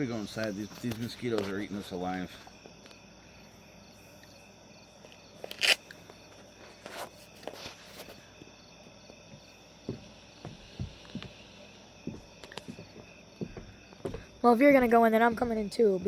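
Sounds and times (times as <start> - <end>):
crickets and insects chirring: 0.0 - 16.0
sharp crack: 5.5 - 6.0.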